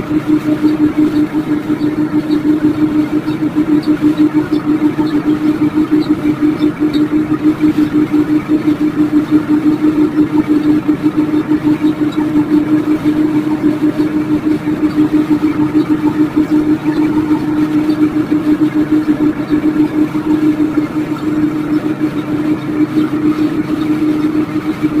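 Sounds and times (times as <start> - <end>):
microwave oven humming: 0.0 - 25.0.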